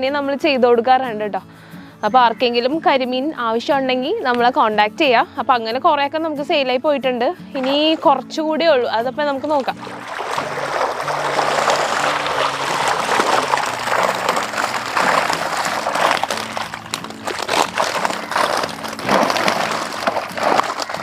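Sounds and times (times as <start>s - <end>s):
background music: 0.0s - 21.0s
water splashing and sloshing: 7.5s - 8.2s, 9.4s - 21.0s.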